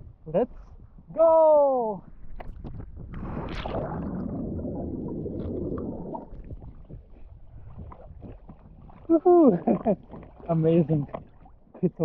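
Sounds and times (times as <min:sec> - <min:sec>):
underwater rushing and bubbling: 0:02.1 - 0:12.0
splash into water: 0:03.1 - 0:07.0.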